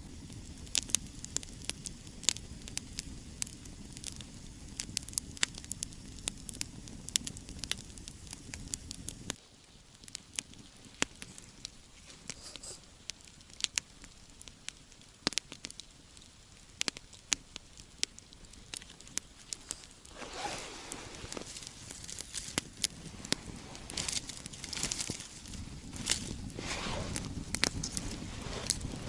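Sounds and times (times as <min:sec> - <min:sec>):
campfire crackling and popping: 0:00.0 - 0:29.0
loud rustling: 0:19.6 - 0:22.6.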